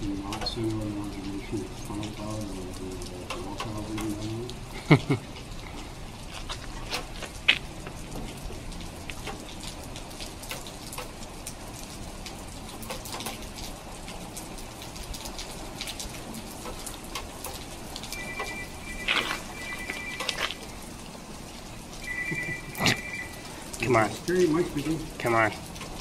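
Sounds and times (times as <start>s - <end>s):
steady rain falling: 0.0s - 26.0s
drops ticking on surfaces: 0.1s - 1.2s
high electronic tone: 18.2s - 20.8s, 22.0s - 23.9s.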